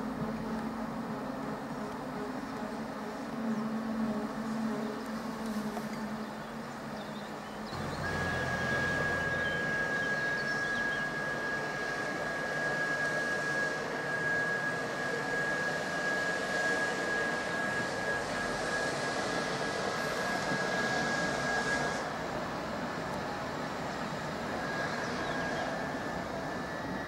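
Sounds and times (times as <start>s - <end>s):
train rushing past: 7.7s - 13.7s
high whine: 7.7s - 22.1s.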